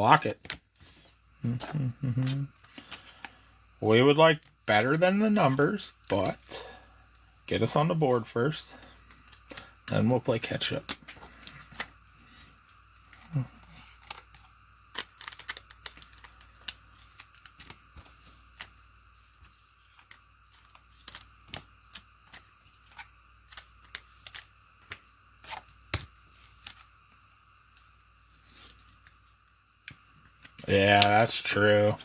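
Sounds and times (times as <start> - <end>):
foil wrapper crinkling: 13.2 - 26.9
cards clicking and snapping: 14.0 - 17.8, 19.4 - 26.9.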